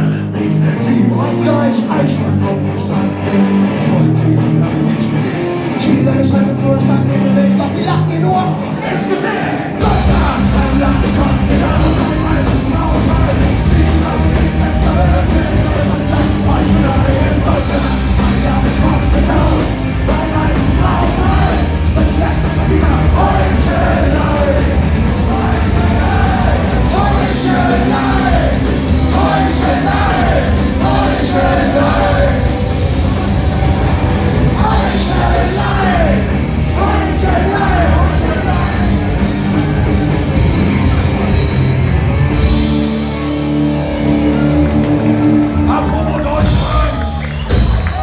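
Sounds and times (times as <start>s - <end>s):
live punk rock band: 0.0s - 48.0s
person singing: 8.8s - 33.2s, 34.3s - 41.3s.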